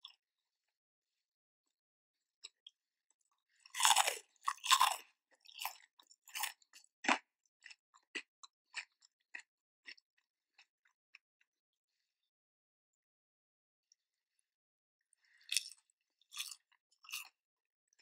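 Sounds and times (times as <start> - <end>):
chewing crispy fried chicken: 2.4 - 11.2, 15.2 - 18.0.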